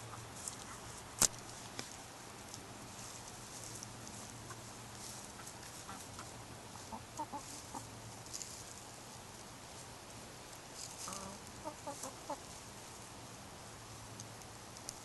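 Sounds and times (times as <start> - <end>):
chickens clucking: 0.0 - 1.0, 3.0 - 8.1, 10.8 - 12.7.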